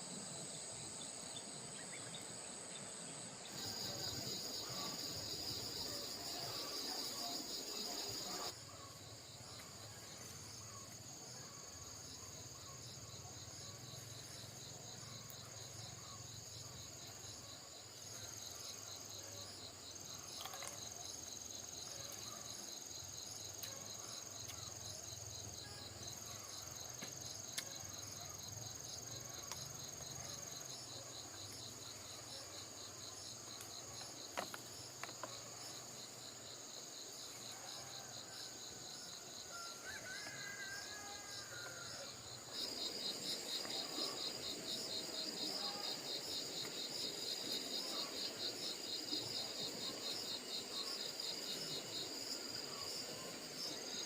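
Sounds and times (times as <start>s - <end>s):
insects pulsing trill: 0.0s - 54.0s.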